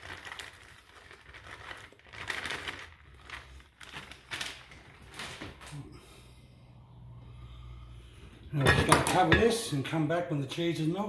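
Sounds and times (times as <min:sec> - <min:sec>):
packaging crinkling and rustling: 0:00.0 - 0:05.9.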